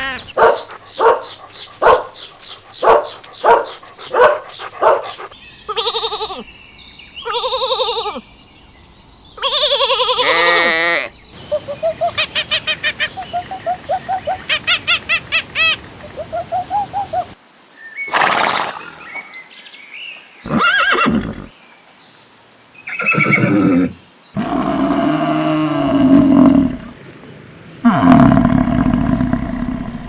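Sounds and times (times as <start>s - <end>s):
horse neighing: 0.0s - 0.4s, 5.7s - 6.4s, 18.1s - 19.1s, 20.5s - 21.5s, 22.9s - 26.9s
horse snorting: 0.0s - 6.3s, 18.1s - 19.2s.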